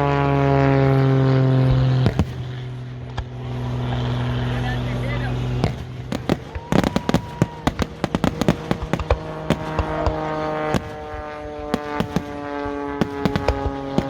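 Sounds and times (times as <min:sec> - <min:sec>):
fireworks crackling and popping: 0:02.0 - 0:02.5, 0:05.6 - 0:14.0.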